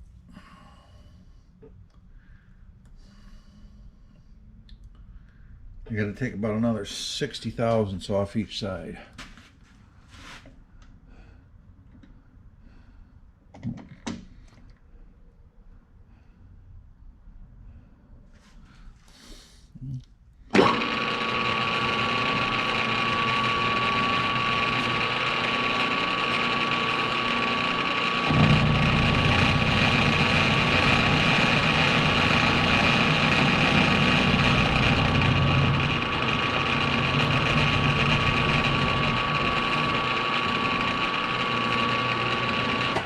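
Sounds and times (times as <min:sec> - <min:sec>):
machine tool motor whining: 0:20.5 - 0:43.0
rough rumble of metal cutting: 0:20.6 - 0:43.0.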